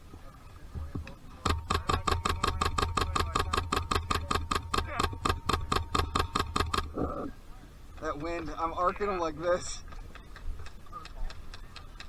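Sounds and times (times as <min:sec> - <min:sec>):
airsoft rifle rapid fire: 0:01.4 - 0:07.2.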